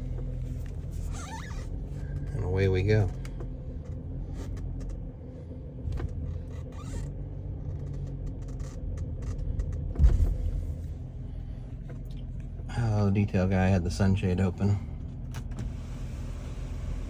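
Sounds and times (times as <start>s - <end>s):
car engine and road rumble: 0.0s - 17.0s
light clicks and creaks: 5.9s - 10.3s
low thump: 9.9s - 10.6s.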